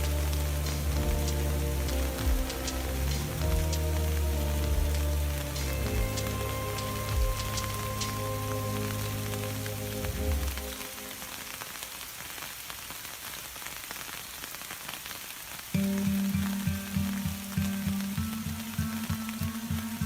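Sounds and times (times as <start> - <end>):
rhythmic background music: 0.0 - 10.8, 15.8 - 20.0
heavy rain falling: 0.0 - 20.0.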